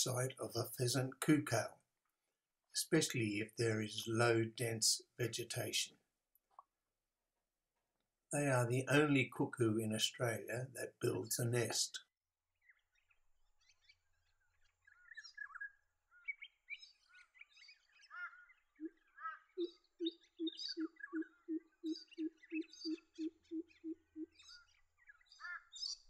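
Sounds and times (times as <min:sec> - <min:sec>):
small birds chirping: 0:07.7 - 0:26.0.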